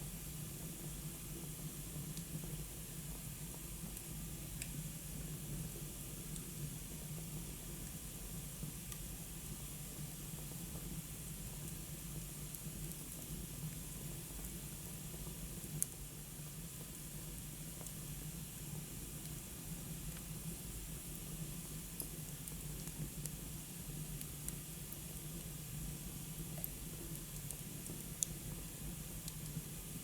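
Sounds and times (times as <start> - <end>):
fire crackling and popping: 26.4 - 29.6.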